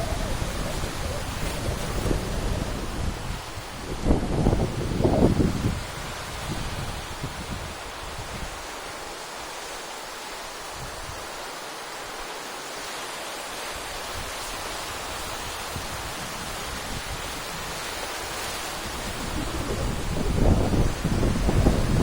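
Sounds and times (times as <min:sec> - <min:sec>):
wind buffeting microphone: 0:00.0 - 0:08.7, 0:15.2 - 0:22.0
waves breaking on rocky shore: 0:00.0 - 0:22.0.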